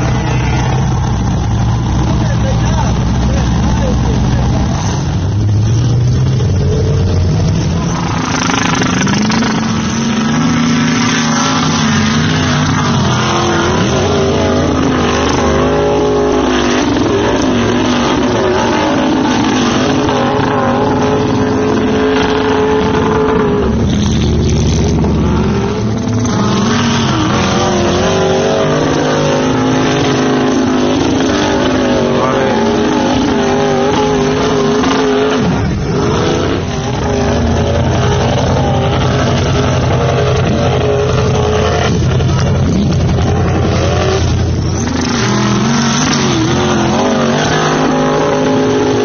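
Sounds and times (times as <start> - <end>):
pickup truck engine revving: 0.0 - 49.0.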